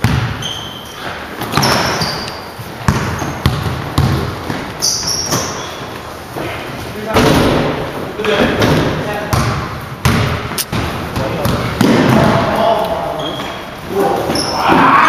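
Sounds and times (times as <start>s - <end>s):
basketball bouncing on court: 0.0s - 0.8s, 1.4s - 2.2s, 2.8s - 5.6s, 8.6s - 13.6s
sneakers squeaking: 0.0s - 15.0s.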